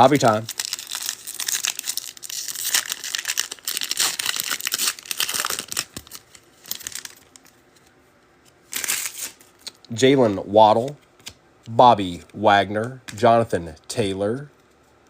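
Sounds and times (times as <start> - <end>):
foil wrappers crinkling and tearing: 0.0 - 7.6, 8.7 - 9.8.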